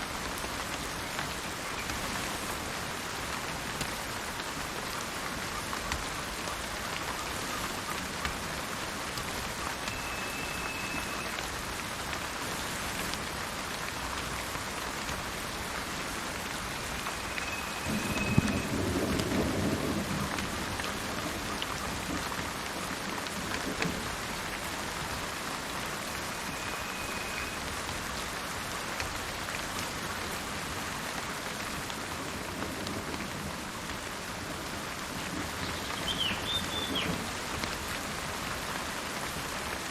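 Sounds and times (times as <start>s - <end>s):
steady rain falling: 0.0s - 39.9s
low roll of thunder: 17.6s - 22.2s.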